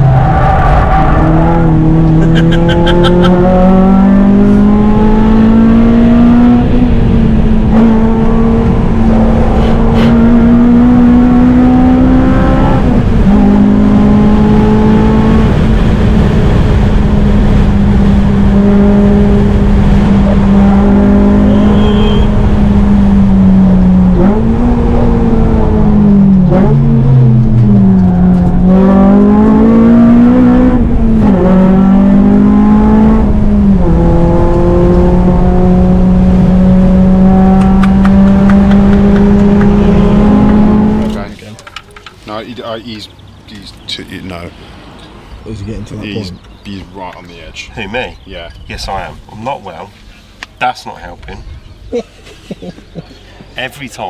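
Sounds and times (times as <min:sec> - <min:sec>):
car engine at high revs: 0:00.0 - 0:41.5.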